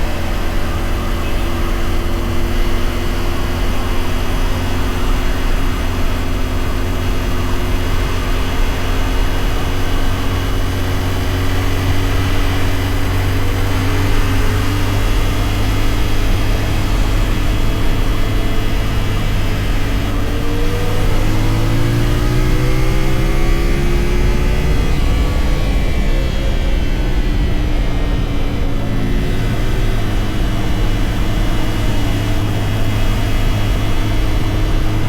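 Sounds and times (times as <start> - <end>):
motorcycle engine cruising: 0.0 - 35.0
wind rushing: 20.7 - 33.9.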